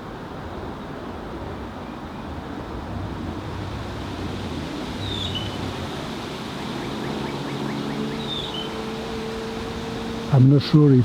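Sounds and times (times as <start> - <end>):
distant road traffic rumble: 0.0 - 11.0
bird call: 4.3 - 10.3.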